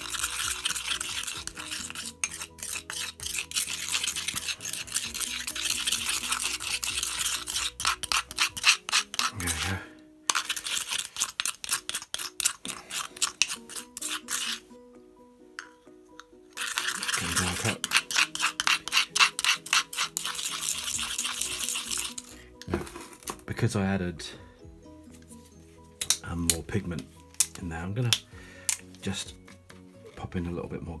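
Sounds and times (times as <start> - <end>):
spoon scraping in stone mortar: 0.0 - 14.8, 15.6 - 23.4.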